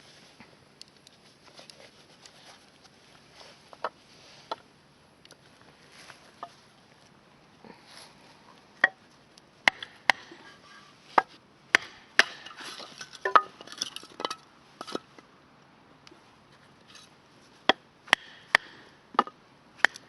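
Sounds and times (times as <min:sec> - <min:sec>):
sharp wooden knocks: 0:09.7 - 0:10.3, 0:11.2 - 0:12.6, 0:17.7 - 0:20.0.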